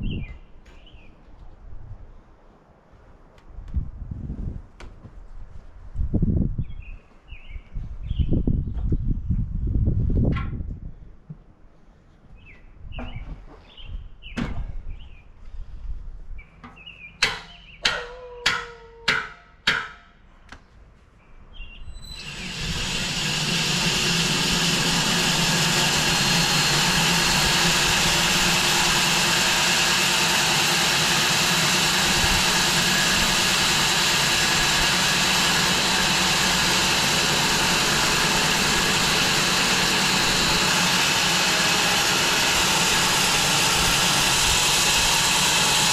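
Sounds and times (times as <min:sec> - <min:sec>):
sharp knocks: 0:17.2 - 0:20.2
bandsaw mill running: 0:22.0 - 0:45.9.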